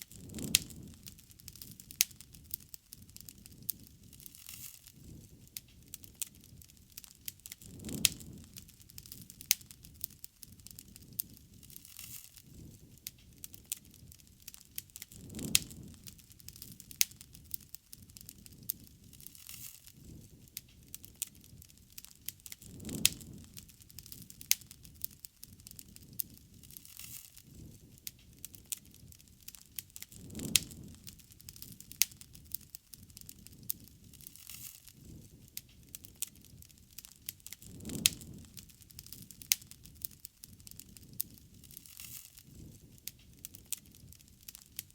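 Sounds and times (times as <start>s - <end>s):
bonfire sharp pops: 0.0s - 44.9s
low fire rumble: 0.0s - 44.9s.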